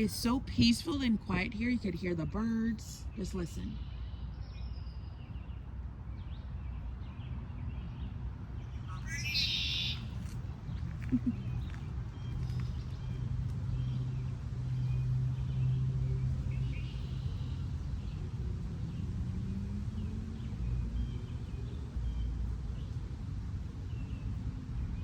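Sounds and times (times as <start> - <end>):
road traffic rumble: 0.0 - 25.0
vehicle engine hum: 0.0 - 25.0
faint bird chirps: 8.6 - 13.2.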